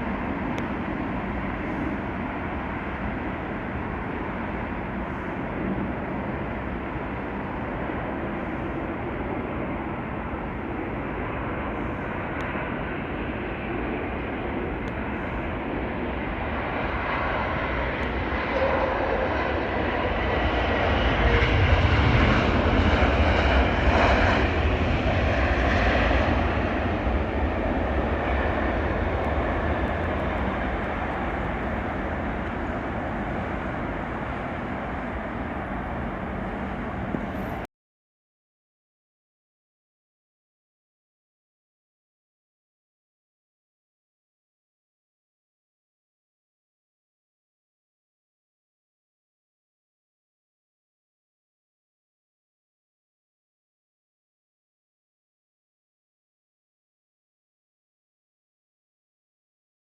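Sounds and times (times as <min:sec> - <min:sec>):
jet airliner engines passing: 0:00.0 - 0:37.7.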